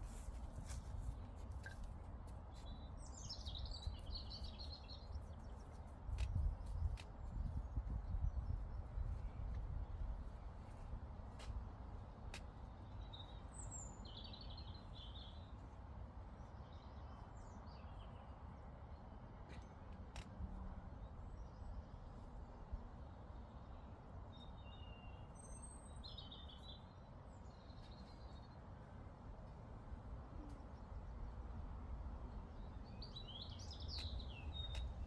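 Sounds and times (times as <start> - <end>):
songbird singing: 2.5 - 10.4, 12.8 - 15.6, 23.4 - 28.6, 32.3 - 35.0
wind on microphone: 6.1 - 10.3.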